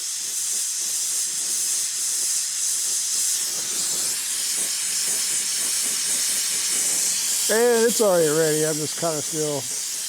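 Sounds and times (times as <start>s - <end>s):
torch flame hissing: 0.0s - 10.0s.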